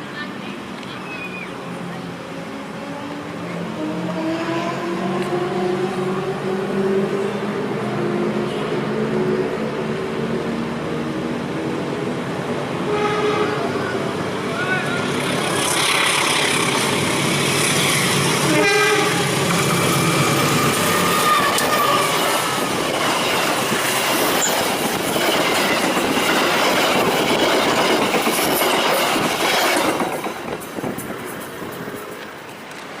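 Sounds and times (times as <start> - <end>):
train passing: 0.0 - 33.0
train horn: 12.9 - 13.8, 18.4 - 19.4.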